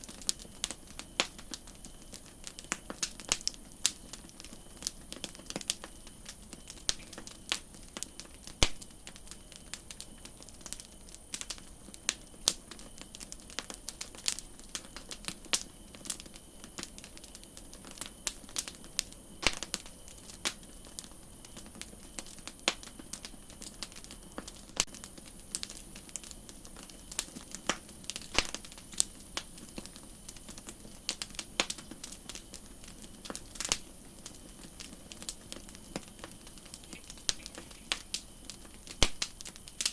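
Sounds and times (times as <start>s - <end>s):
campfire crackling and popping: 0.0s - 39.9s
high hiss: 24.8s - 38.4s.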